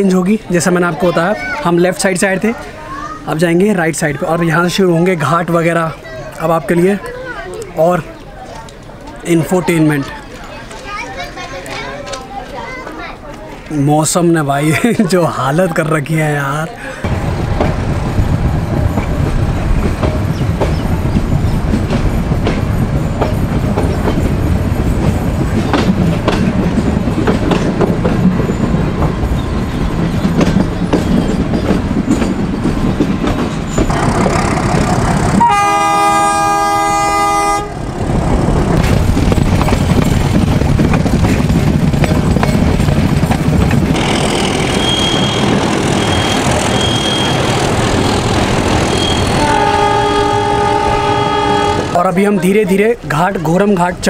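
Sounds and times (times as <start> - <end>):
train wheels clattering on track: 17.0 - 52.0
locomotive horn blast: 35.2 - 37.9, 48.9 - 52.0
faint high squeal: 44.7 - 47.6.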